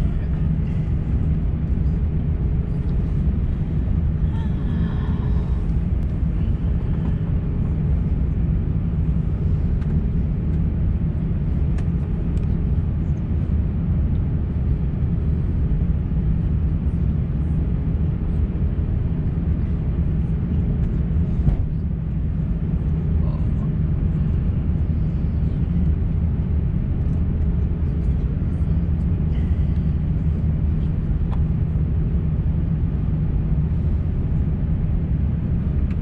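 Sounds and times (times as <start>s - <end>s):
airplane cabin rumble: 0.0s - 36.0s
faint hum tones: 0.0s - 36.0s.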